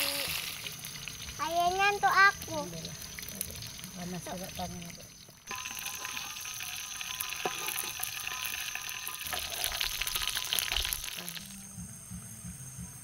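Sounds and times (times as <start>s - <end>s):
food sizzling in hot oil: 0.0s - 11.7s.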